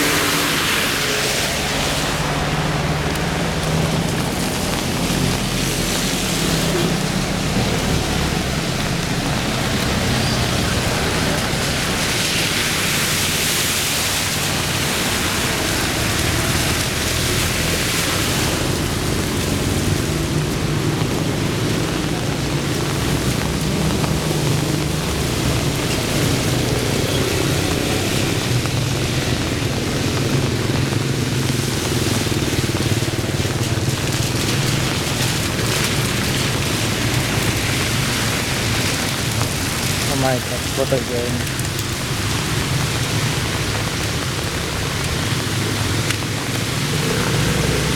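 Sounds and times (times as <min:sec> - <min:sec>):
heavy rain: 0:00.0 - 0:47.9.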